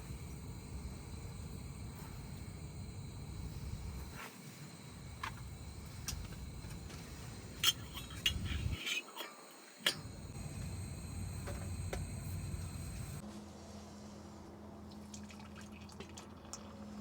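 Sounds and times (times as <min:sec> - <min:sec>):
steady low rumble: 0:00.0 - 0:08.8, 0:10.0 - 0:13.2.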